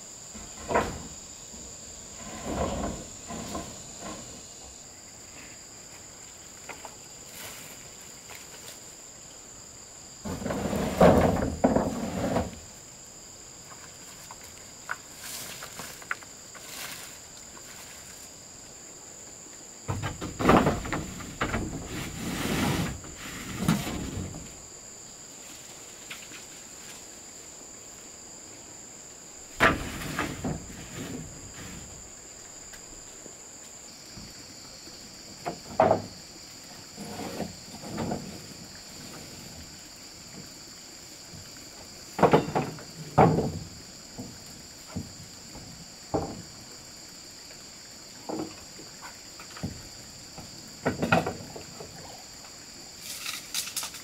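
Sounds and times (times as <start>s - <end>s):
crickets chirring: 0.0s - 54.0s
knocking of wood and tools: 0.3s - 1.2s, 10.2s - 12.5s, 19.9s - 21.9s, 35.4s - 36.2s, 42.2s - 46.5s, 50.4s - 51.6s.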